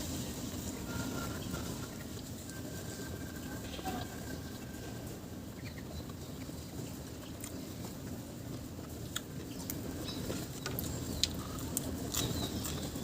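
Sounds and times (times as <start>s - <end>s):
steady low rumble: 0.0s - 13.0s
chewing: 7.2s - 8.0s, 9.0s - 13.0s.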